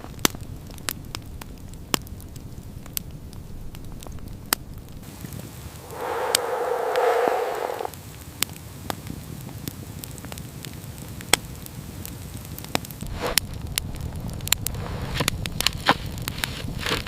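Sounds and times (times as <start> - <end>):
wood fire crackling: 10.0 - 14.5.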